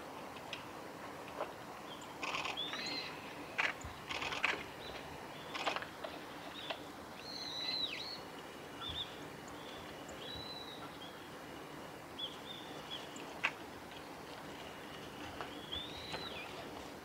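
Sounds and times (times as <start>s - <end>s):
birds whistling calls: 6.5s - 11.2s, 15.4s - 16.6s.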